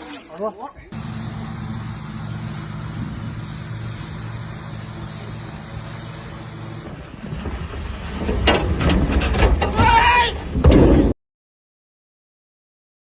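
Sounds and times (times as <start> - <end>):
low motor drone: 0.9 - 6.9.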